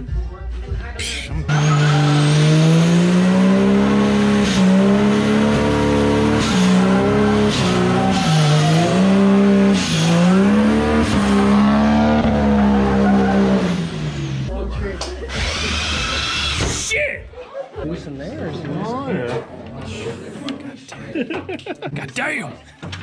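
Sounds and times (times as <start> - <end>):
belt sander motor running: 1.5 - 14.5.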